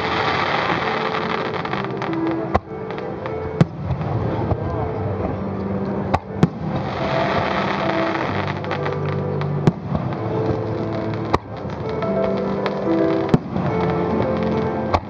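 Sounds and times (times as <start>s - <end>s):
fireworks crackling hiss: 0.0s - 4.6s, 6.4s - 15.0s.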